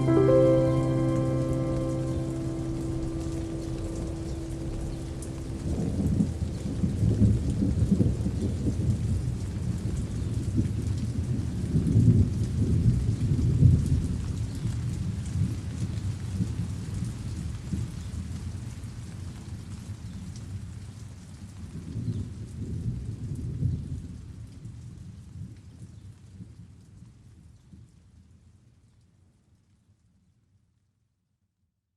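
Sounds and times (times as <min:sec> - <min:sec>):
thunder rumbling: 0:00.0 - 0:09.4
steady rain: 0:00.0 - 0:29.7.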